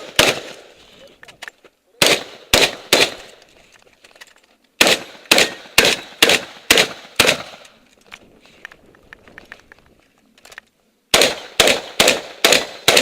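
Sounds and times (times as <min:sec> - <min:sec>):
shotgun shots with echo: 0:00.0 - 0:00.7, 0:02.0 - 0:03.3, 0:04.8 - 0:07.6, 0:11.1 - 0:13.0
faint small clicks: 0:07.9 - 0:10.8.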